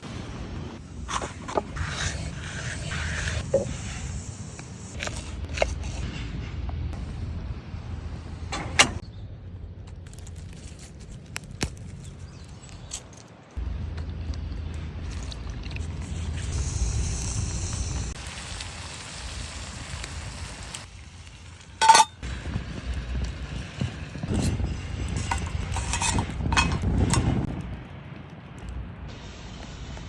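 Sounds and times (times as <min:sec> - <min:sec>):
campfire low rumble: 0:00.0 - 0:12.8, 0:13.6 - 0:30.0.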